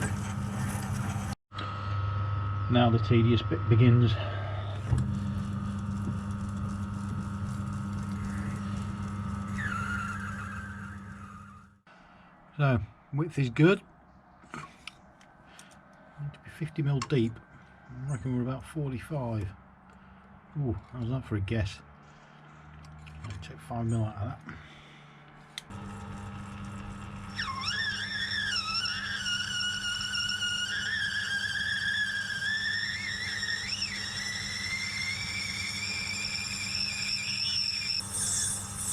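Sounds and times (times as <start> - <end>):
machine motor hum: 0.0 - 11.7, 25.7 - 37.0
cutter squealing: 4.8 - 11.7, 25.6 - 38.9.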